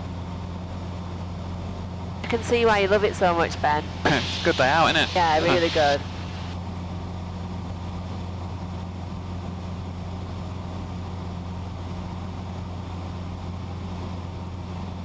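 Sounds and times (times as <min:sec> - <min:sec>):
propeller plane engine drone: 0:00.0 - 0:15.0.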